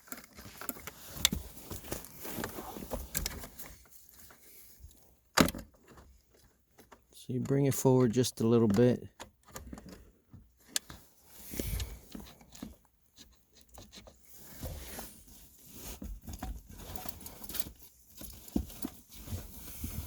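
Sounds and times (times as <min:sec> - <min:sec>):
clicks and knocks of parts: 0:05.3 - 0:11.0.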